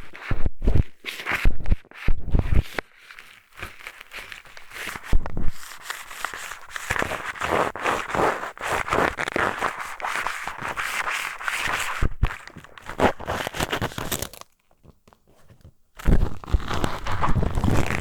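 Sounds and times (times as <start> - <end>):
scratchy rubbing in ear: 0.0 - 13.8.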